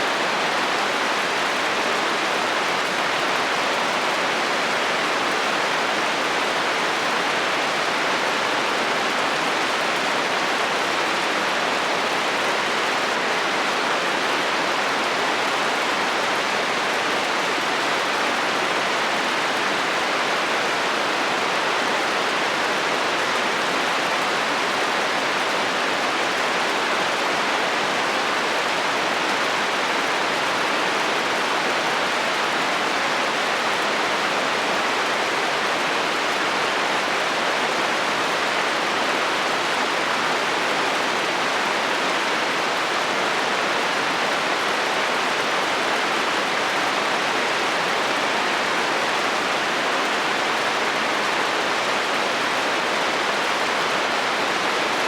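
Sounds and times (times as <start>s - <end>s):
heavy rain on a metal roof: 0.0s - 55.0s.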